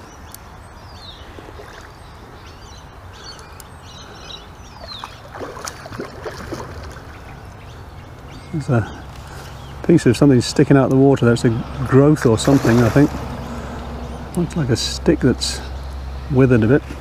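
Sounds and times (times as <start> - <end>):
birds calling: 0.0 - 17.0
outdoor background hiss: 0.0 - 17.0.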